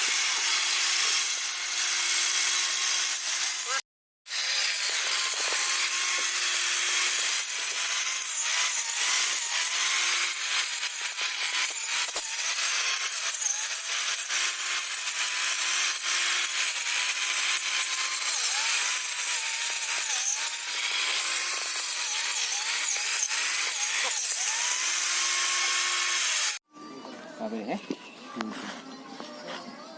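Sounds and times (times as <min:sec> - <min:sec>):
electric grass cutter whirring: 0:03.7 - 0:14.5.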